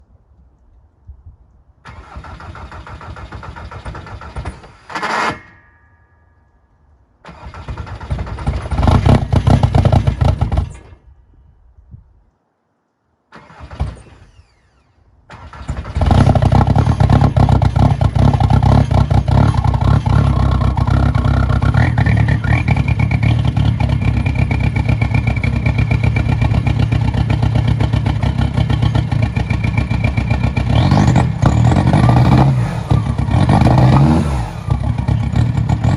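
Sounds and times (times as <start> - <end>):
diesel engine starting and idling: 1.8 - 5.6, 7.2 - 11.1, 13.3 - 35.9.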